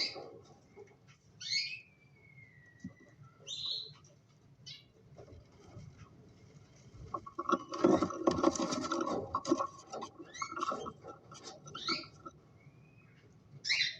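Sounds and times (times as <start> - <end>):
scratching and clicking: 5.0 - 12.6.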